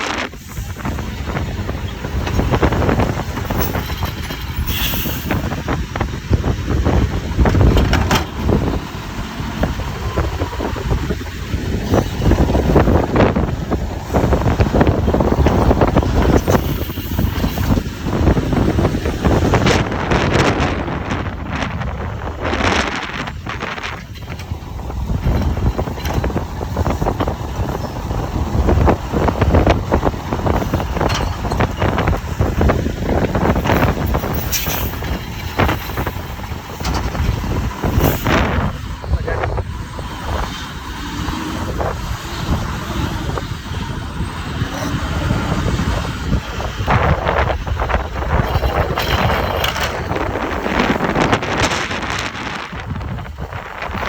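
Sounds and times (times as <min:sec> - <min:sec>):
garbage truck running: 0:00.0 - 0:54.0
wind buffeting microphone: 0:00.0 - 0:54.0
knocks and clanks: 0:07.4 - 0:08.7, 0:48.2 - 0:50.5.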